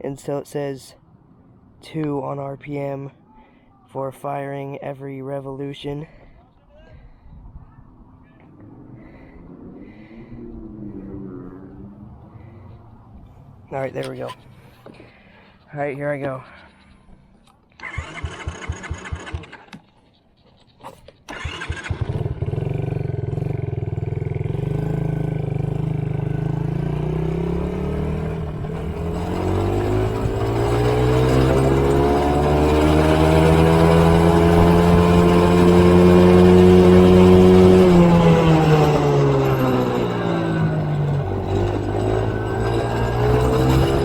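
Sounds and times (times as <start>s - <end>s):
motorcycle engine starting and revving: 8.4s - 14.4s, 17.8s - 20.2s, 21.2s - 44.0s.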